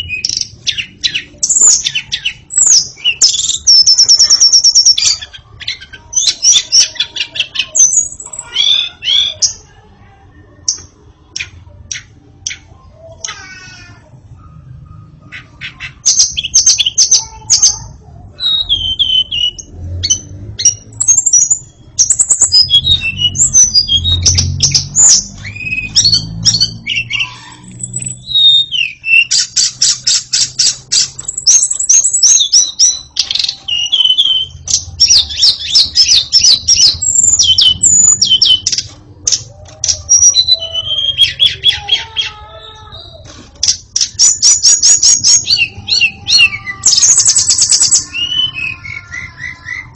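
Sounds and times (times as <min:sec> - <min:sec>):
bird singing whistles and trills: 0:00.0 - 0:09.6, 0:16.1 - 0:38.9, 0:39.6 - 0:42.0, 0:44.0 - 0:49.9.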